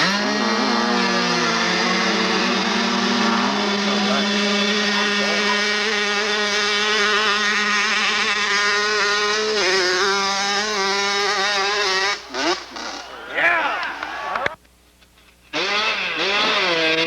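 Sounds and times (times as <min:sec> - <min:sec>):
motorcycle engine revving high: 0:00.0 - 0:14.5, 0:15.5 - 0:17.0.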